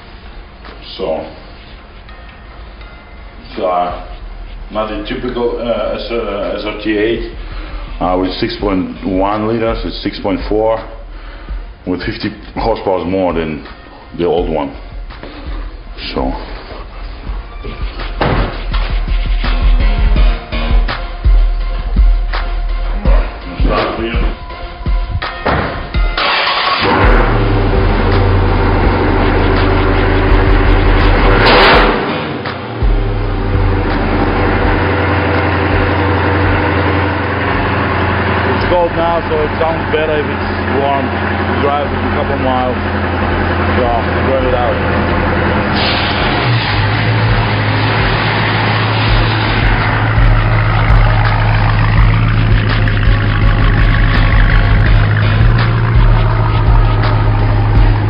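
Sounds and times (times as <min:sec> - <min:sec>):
car engine starting and revving: 0:25.2 - 0:58.0.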